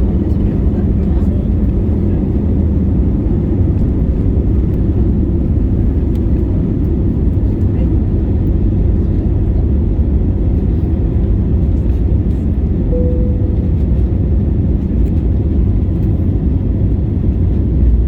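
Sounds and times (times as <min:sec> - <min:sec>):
jet engines rumbling at takeoff: 0:00.0 - 0:18.0
faint tone: 0:12.9 - 0:14.3.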